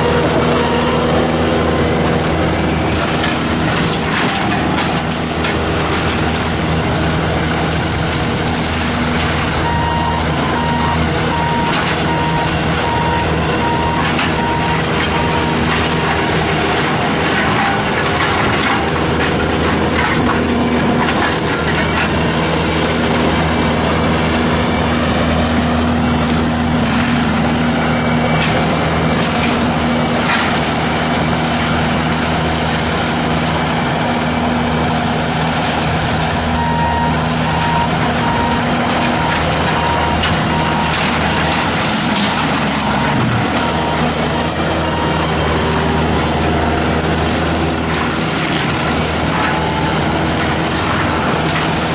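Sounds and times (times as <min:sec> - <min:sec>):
heavy engine and drum drone: 0:00.0 - 0:51.9
backup alarm beeping: 0:09.6 - 0:16.1, 0:36.5 - 0:41.4.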